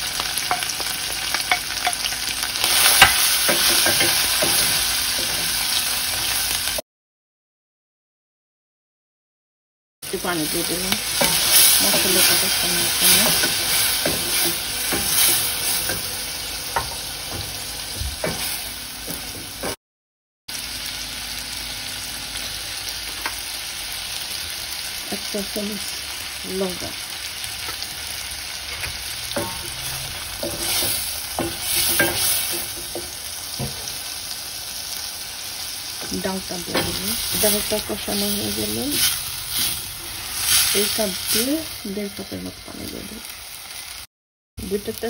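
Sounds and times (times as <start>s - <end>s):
paste sizzling in oil: 0.0s - 6.8s, 10.1s - 18.8s, 22.2s - 44.1s
spatula scraping a pan: 2.6s - 5.5s, 11.1s - 16.1s, 28.6s - 33.2s, 36.7s - 41.4s.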